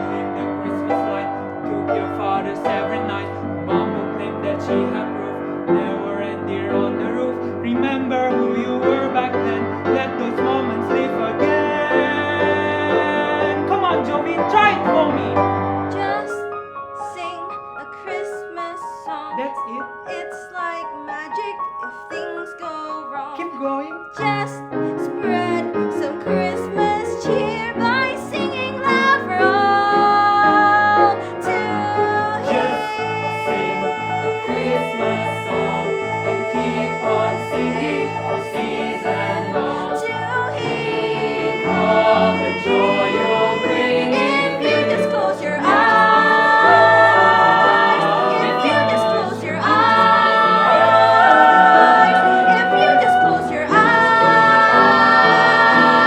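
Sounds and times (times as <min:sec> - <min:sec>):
group singing show tune: 0:00.0 - 0:16.4, 0:17.0 - 0:56.0
instrumental accompaniment: 0:24.5 - 0:56.0.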